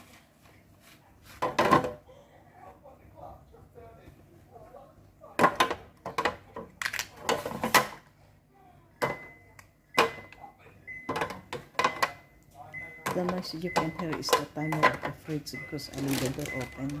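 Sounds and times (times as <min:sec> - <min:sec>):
kitchen items clattering: 0:01.3 - 0:02.1, 0:05.4 - 0:08.0, 0:10.9 - 0:12.2, 0:13.0 - 0:17.0
fridge door alarm beeping: 0:09.0 - 0:17.0.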